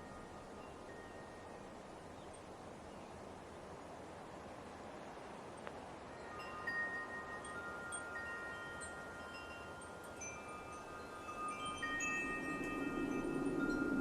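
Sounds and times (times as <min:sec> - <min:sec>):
wind chimes ringing: 0:00.0 - 0:02.4, 0:06.0 - 0:14.0
soft steady wind: 0:00.0 - 0:14.0.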